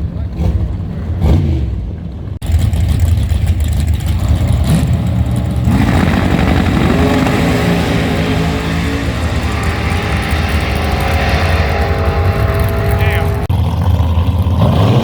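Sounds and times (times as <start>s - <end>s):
loud car engine: 0.0s - 15.0s
rising tone: 5.0s - 13.6s.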